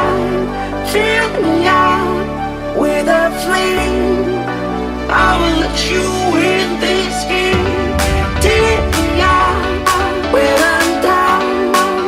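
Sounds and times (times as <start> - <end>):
woman singing pop song: 0.0 - 4.4, 5.1 - 12.0
bass line: 7.2 - 11.6.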